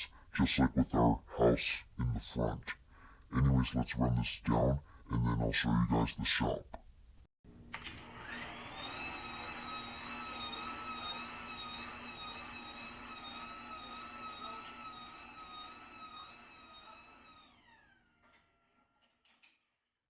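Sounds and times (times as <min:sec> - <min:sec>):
garage door opener whine: 0:07.6 - 0:19.4.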